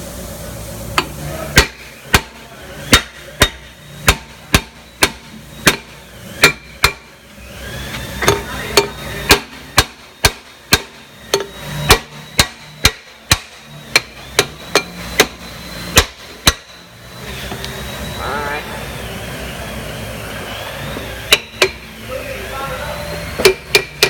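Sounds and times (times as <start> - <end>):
hammer striking metal brake drum: 1.0 - 7.1, 8.2 - 16.8, 21.3 - 21.9, 23.4 - 24.0.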